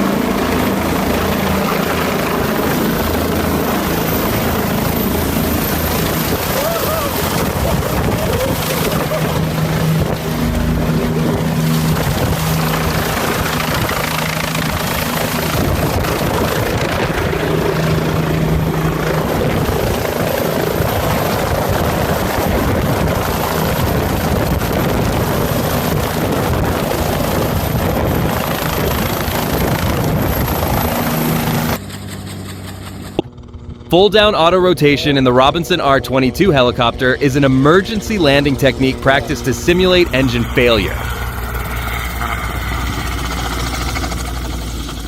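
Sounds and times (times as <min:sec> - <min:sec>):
helicopter rotor and engine: 0:00.0 - 0:45.0.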